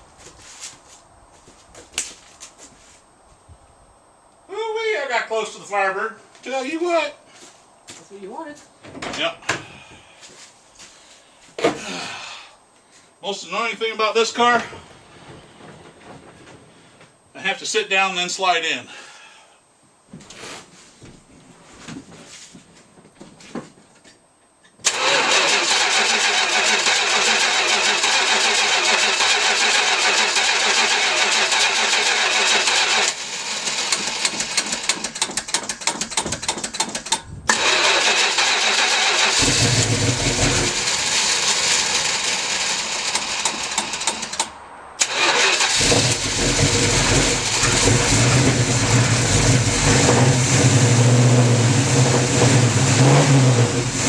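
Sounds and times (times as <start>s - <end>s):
starter motor cranking: 24.8s - 54.0s
car engine running: 24.9s - 54.0s.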